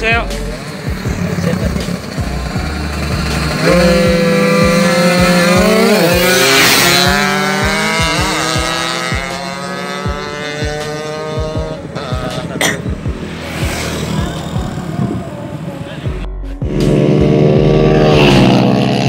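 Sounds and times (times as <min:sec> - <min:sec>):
small motorcycle engine accelerating: 0:00.8 - 0:16.0, 0:16.7 - 0:19.0
rush of noise: 0:12.2 - 0:18.8.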